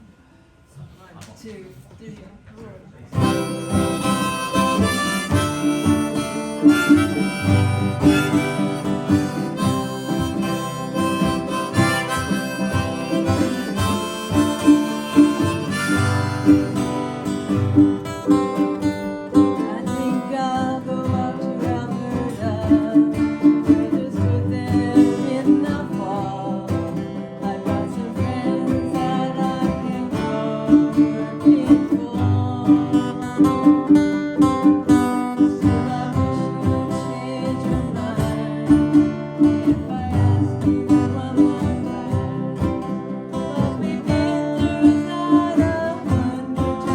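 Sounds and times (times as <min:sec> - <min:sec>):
strummed acoustic guitar: 0:03.1 - 0:46.9
wavering melody line: 0:03.2 - 0:18.8
harmonica melody: 0:03.2 - 0:46.9.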